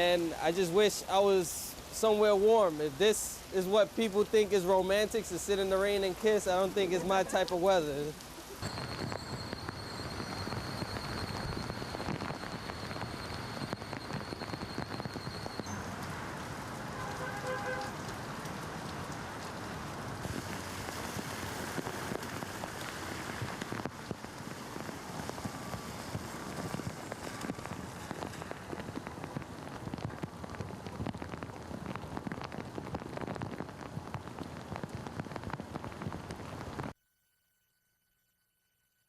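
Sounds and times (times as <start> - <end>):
heavy rain on a street: 0.0 - 36.9.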